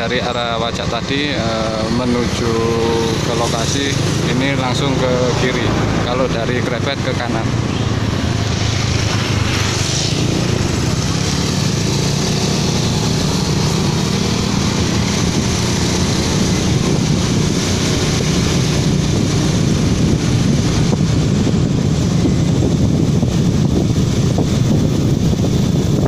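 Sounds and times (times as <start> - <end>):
vehicle engine hum: 0.0 - 26.0
wind noise on microphone: 0.0 - 26.0.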